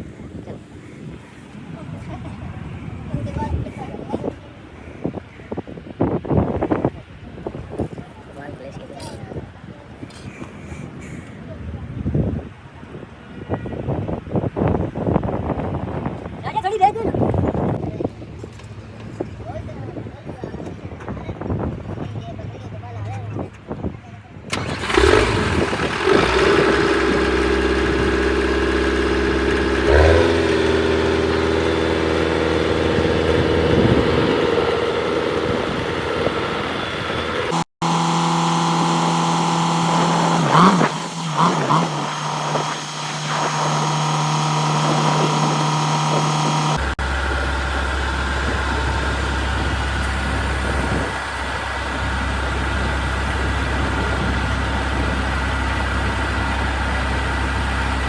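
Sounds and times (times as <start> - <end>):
vehicle engine idling: 24.5 - 58.0.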